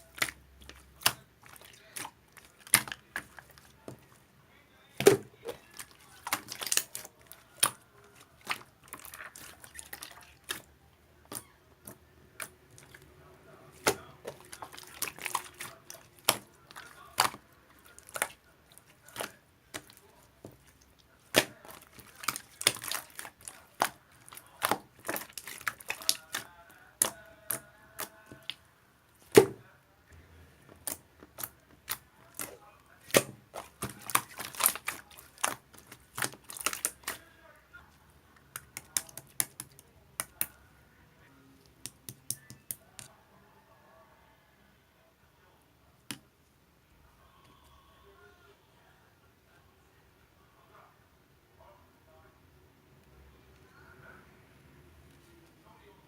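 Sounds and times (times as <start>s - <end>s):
sharp clicks and taps: 41.7s - 43.1s.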